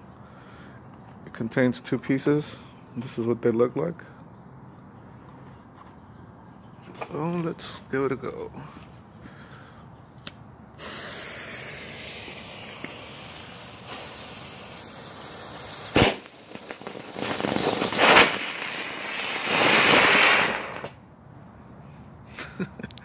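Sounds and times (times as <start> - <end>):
firework fountain hissing: 10.8 - 21.0.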